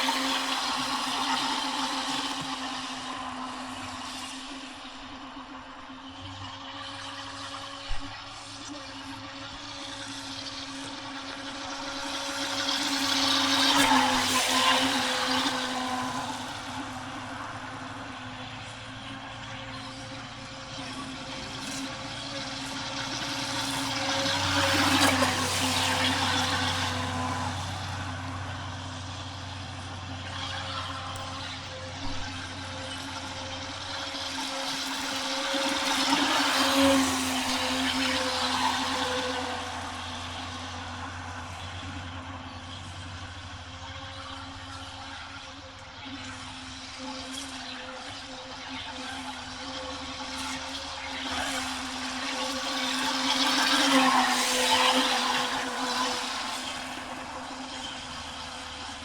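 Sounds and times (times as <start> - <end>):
water rushing and spraying: 0.0 - 42.1
electric motor whine: 0.0 - 59.0.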